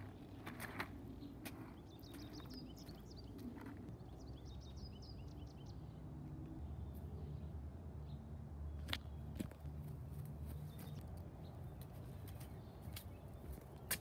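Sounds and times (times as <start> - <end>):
small bird chirping: 0.0 - 5.9.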